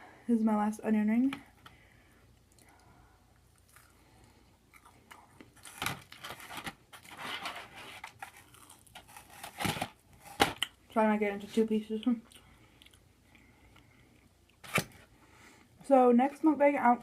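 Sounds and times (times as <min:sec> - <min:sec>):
chewing and crunching onion ring: 0:02.4 - 0:07.1, 0:08.0 - 0:10.9, 0:11.9 - 0:14.6.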